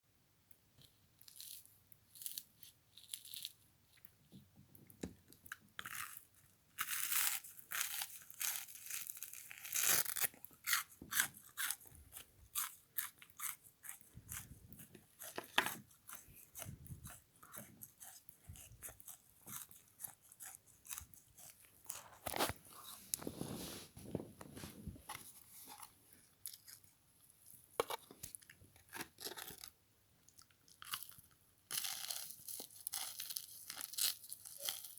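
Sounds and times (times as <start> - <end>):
crisp crunching while chewing: 1.2 - 3.6, 5.4 - 23.4, 27.8 - 34.9.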